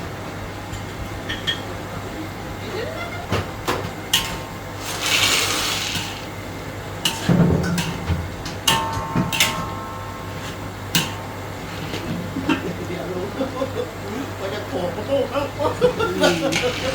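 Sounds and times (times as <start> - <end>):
sharp ringing clanks: 7.0 - 12.0.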